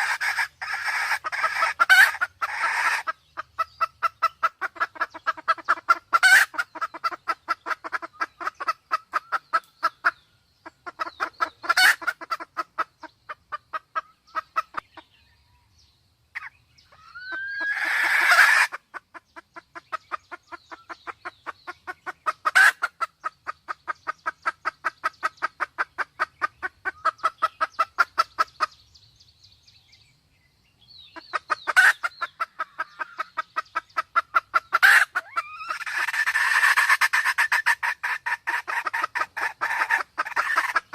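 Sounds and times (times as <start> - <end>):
sharp loud hen calls: 0.0 - 3.1, 34.7 - 40.9
hen clucking: 0.0 - 15.3, 16.3 - 28.9, 31.0 - 40.9.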